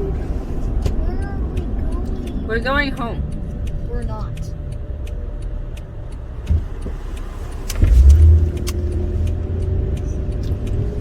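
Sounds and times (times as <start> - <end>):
car engine and tyre rumble: 0.0 - 11.0
short thump: 6.5 - 7.0.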